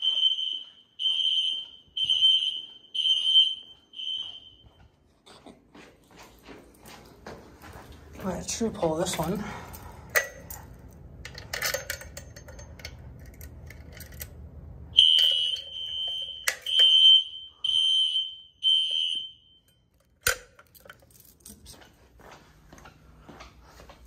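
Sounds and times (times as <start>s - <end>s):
fire alarm high tone: 0.0s - 4.9s, 15.0s - 19.9s
alarm pull station clicks: 15.0s - 20.7s.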